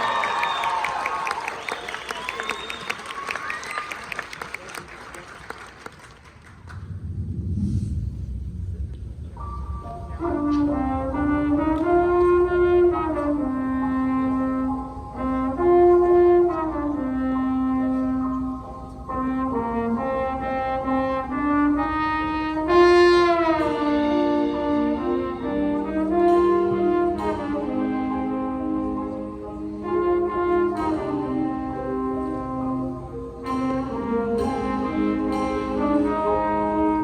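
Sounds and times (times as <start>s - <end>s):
wind ensemble playing chords: 9.4s - 37.0s.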